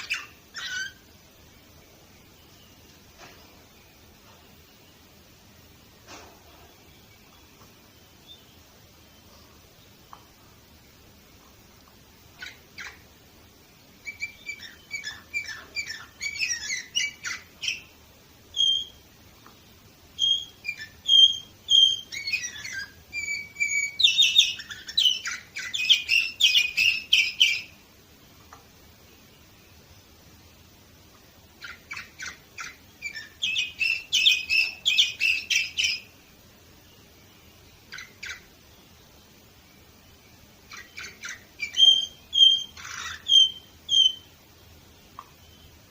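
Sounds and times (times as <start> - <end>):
canary singing: 0.0 - 2.9, 12.2 - 27.9, 31.4 - 36.3, 37.0 - 38.7, 39.8 - 45.9.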